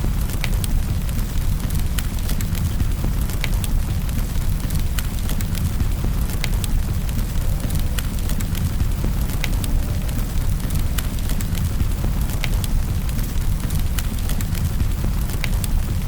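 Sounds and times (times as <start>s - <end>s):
steady rain: 0.0s - 16.0s
wood fire crackling and popping: 0.0s - 16.0s.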